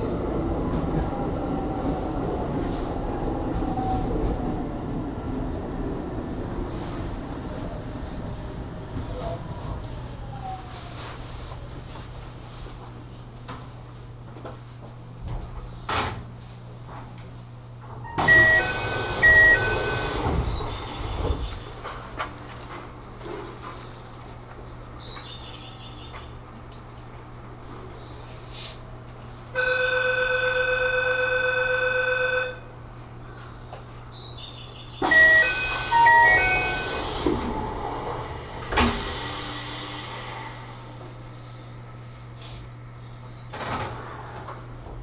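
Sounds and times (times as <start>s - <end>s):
low train hum: 0.0s - 45.0s
train doors sliding closed: 17.9s - 22.4s, 35.0s - 41.2s, 43.4s - 45.0s
electronic door chime: 18.1s - 20.2s, 35.0s - 37.2s.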